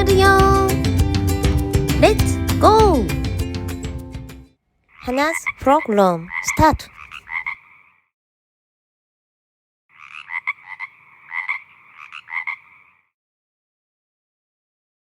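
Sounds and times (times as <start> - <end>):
frog croaking: 4.8 - 8.1, 9.9 - 13.2.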